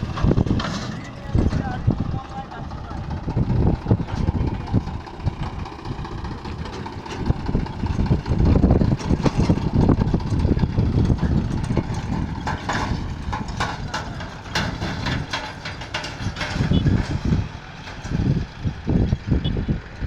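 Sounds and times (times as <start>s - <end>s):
tractor diesel engine running: 0.0s - 20.0s
sharp clicks and knocks: 6.2s - 18.1s.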